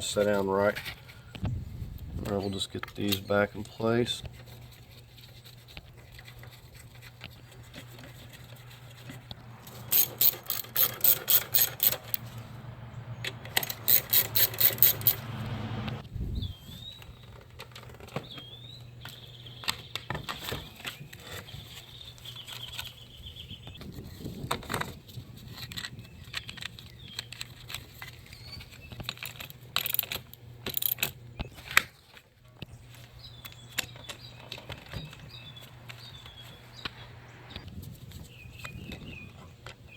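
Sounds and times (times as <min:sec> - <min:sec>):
ratchet wrench clicking: 0:09.6 - 0:12.3, 0:13.4 - 0:15.3
steady low hum: 0:32.7 - 0:38.1.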